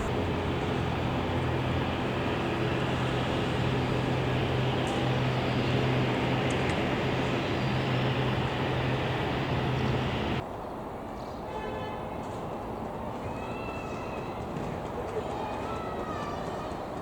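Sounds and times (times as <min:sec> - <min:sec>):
aircraft engines running: 0:00.0 - 0:10.4
low hum: 0:00.0 - 0:10.4.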